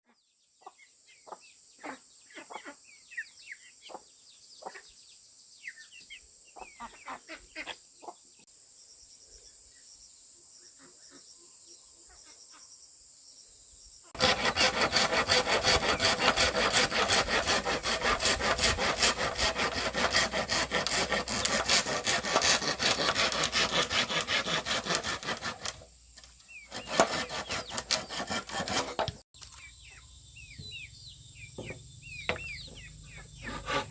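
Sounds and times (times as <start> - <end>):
insect hum: 0.2 - 14.2, 29.4 - 33.9
birds chirping: 0.3 - 8.4, 9.3 - 33.9
saw cutting: 14.2 - 25.9, 26.7 - 29.2, 31.6 - 33.9.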